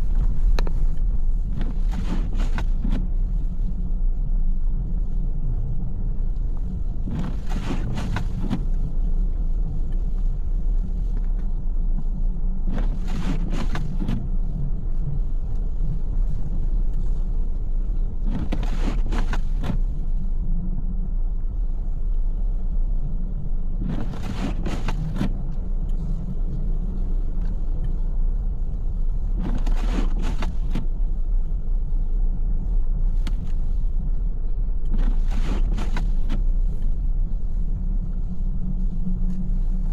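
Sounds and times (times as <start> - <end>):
windshield wiper swish: 0.0 - 3.8, 6.9 - 10.2, 12.7 - 14.6, 18.2 - 20.1, 23.8 - 27.7, 29.2 - 31.1, 34.9 - 39.9
road and engine rumble: 0.0 - 39.9.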